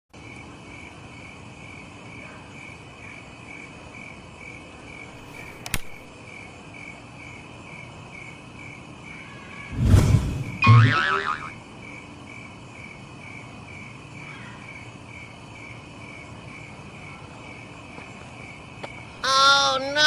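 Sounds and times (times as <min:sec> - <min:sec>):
insect chirping: 0:00.2 - 0:20.0
sharp click: 0:05.4 - 0:06.0
rustling thump: 0:09.7 - 0:10.8.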